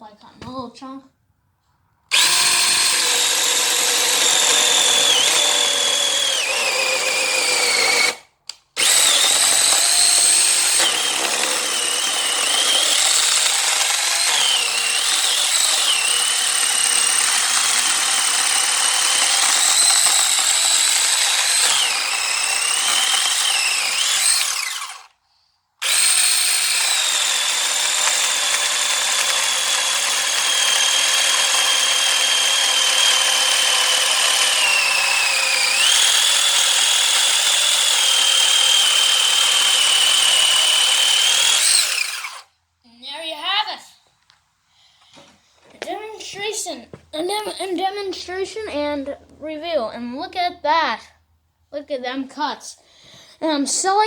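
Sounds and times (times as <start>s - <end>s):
electric chainsaw cutting wood: 2.1s - 25.2s, 25.8s - 42.5s.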